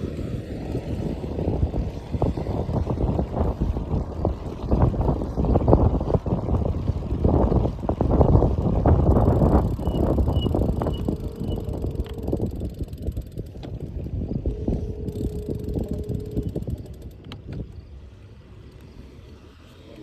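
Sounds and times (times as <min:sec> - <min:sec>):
wind buffeting microphone: 0:00.0 - 0:19.4
bicycle road rumble: 0:00.0 - 0:20.0
faint steady hum: 0:14.2 - 0:19.4.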